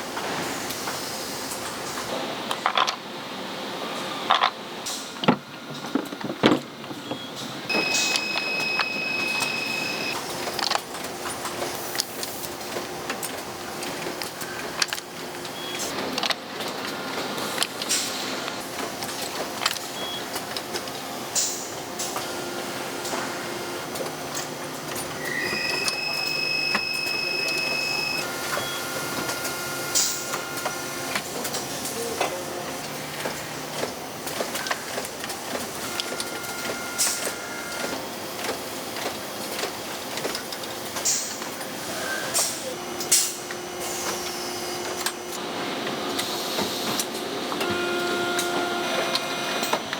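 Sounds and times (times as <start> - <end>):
factory machinery running: 0.0 - 49.9
high steady tone: 7.7 - 10.2
machinery high whine: 7.7 - 10.2, 21.5 - 31.2, 42.8 - 49.9
machine clicks and clacks: 7.7 - 22.3, 23.9 - 49.9.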